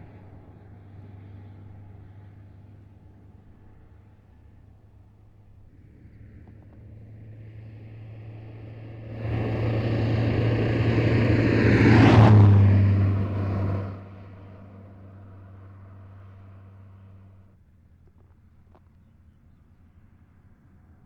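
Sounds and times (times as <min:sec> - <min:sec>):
car passing by: 0:05.8 - 0:17.4.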